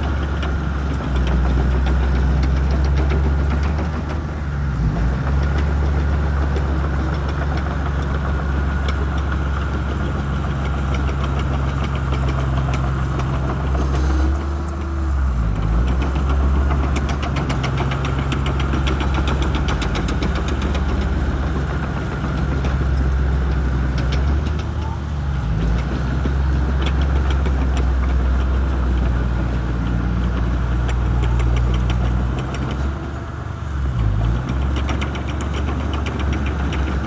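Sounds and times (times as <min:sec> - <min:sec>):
bulldozer diesel engine running: 0:00.0 - 0:37.0.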